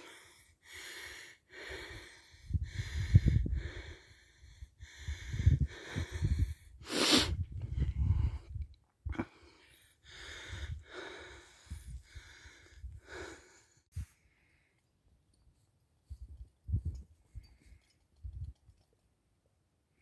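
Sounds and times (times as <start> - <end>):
man panting: 0.0 - 8.3, 9.2 - 13.9.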